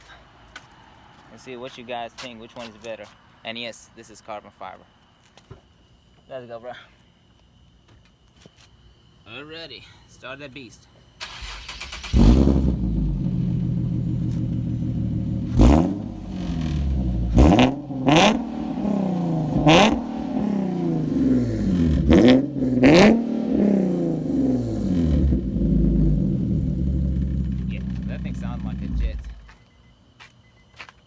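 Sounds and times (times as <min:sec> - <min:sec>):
engine starter cranking: 0:11.2 - 0:12.8
engine revving and idling: 0:11.8 - 0:29.5.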